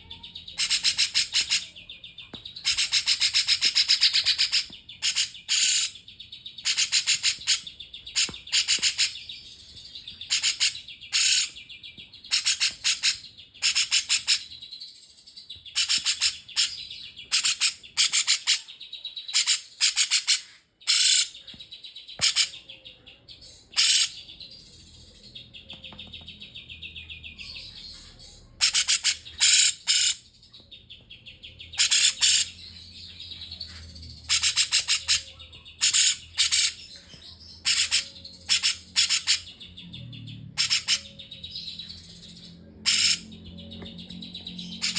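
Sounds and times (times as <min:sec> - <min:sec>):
songbird high rapid chirping: 0:02.5 - 0:06.0, 0:06.6 - 0:14.6, 0:31.6 - 0:44.9.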